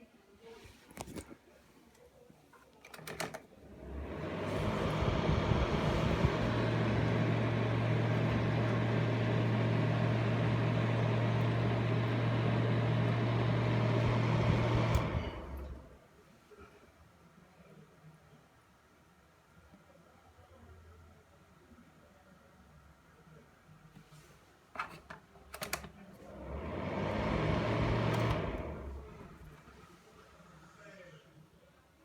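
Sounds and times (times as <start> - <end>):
fan heater blowing: 2.9 - 16.0, 25.5 - 31.0.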